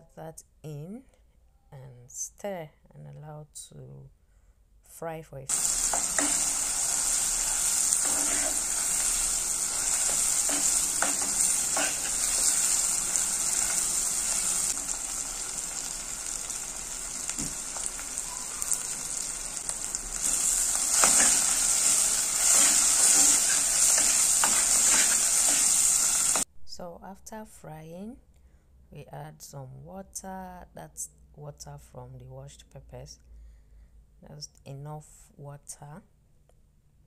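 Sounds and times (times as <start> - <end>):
paste sizzling in oil: 5.5 - 26.5.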